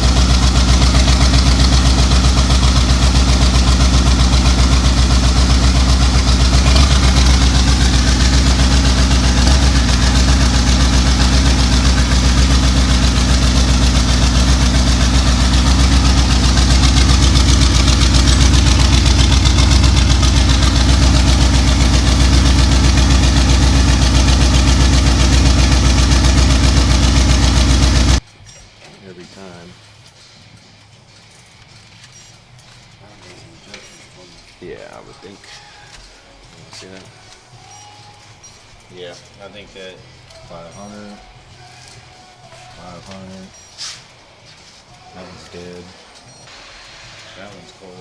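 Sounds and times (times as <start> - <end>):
engine idling and misfiring: 0.0 - 28.2.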